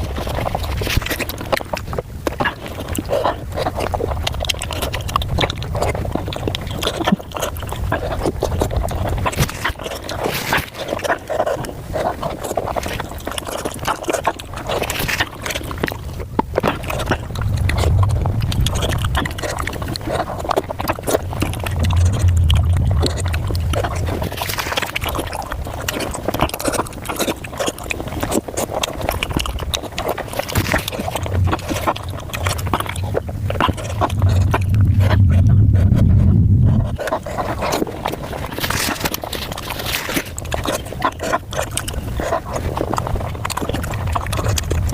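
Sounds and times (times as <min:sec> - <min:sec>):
sped-up chewing and mouth smacks: 0:00.0 - 0:44.9.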